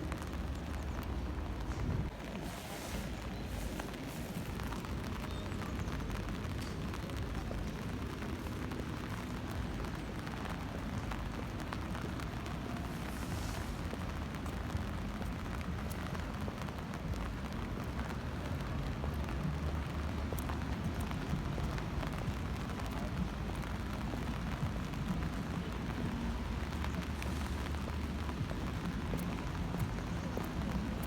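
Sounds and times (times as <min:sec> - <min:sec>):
steady rain hiss: 0:00.0 - 0:31.0.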